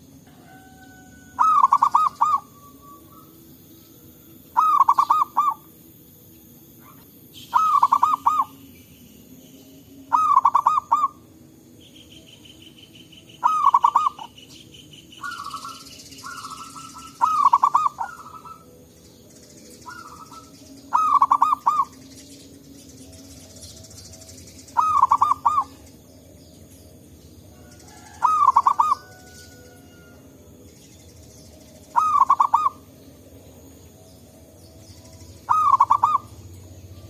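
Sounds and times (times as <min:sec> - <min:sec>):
high buzzing trill: 0:01.3 - 0:27.6
dove bubbling coo: 0:01.4 - 0:03.2, 0:04.6 - 0:05.6, 0:06.8 - 0:08.5, 0:10.1 - 0:11.2, 0:13.4 - 0:14.3, 0:15.2 - 0:18.6, 0:19.9 - 0:21.9, 0:24.8 - 0:25.8, 0:28.0 - 0:29.1, 0:31.9 - 0:32.8, 0:35.5 - 0:36.4.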